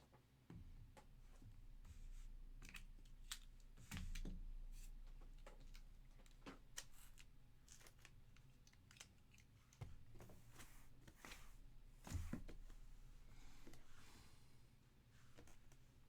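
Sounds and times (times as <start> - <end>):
faint clicks and taps: 5.1 - 11.4.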